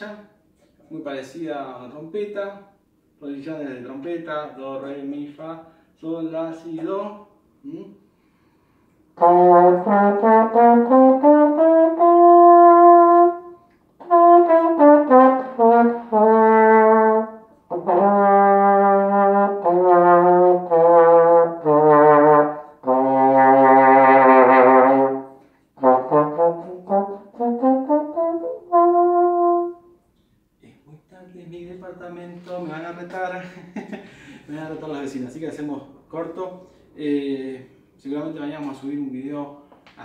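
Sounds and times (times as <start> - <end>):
horn playing solo: 9.2 - 30.0.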